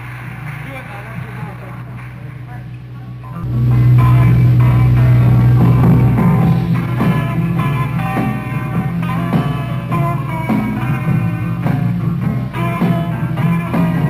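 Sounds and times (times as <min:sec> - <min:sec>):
low bass note: 0:03.4 - 0:13.6
rock band playing: 0:03.4 - 0:14.0.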